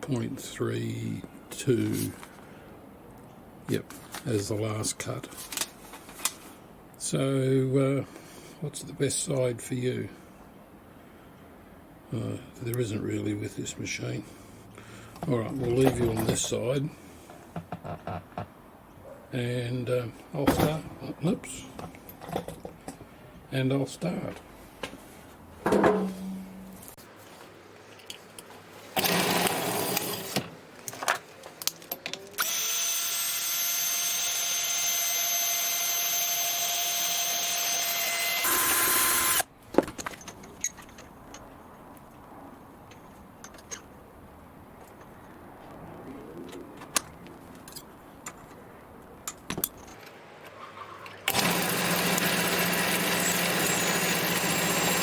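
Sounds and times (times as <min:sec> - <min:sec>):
milling machine motor whining: 0:32.4 - 0:39.4, 0:51.3 - 0:55.0.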